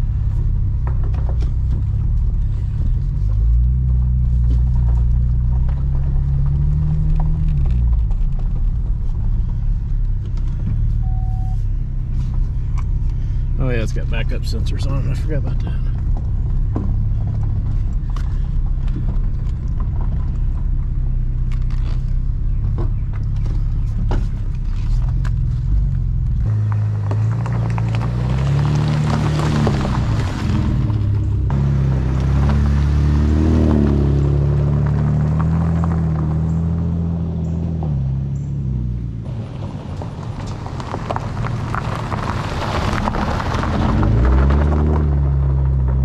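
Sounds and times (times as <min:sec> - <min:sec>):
car engine rumbling: 0:00.0 - 0:46.0.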